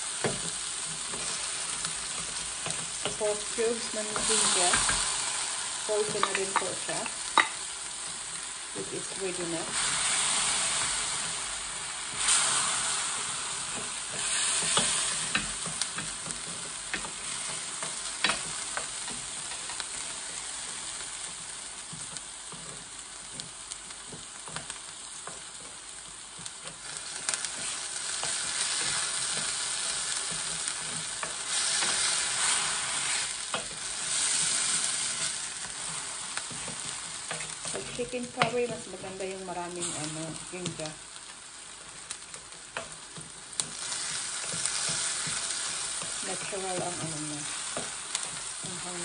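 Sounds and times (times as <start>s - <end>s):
garlic sizzling in oil: 0.0s - 49.0s
wooden spoon scraping pan: 5.9s - 8.2s, 26.6s - 40.2s.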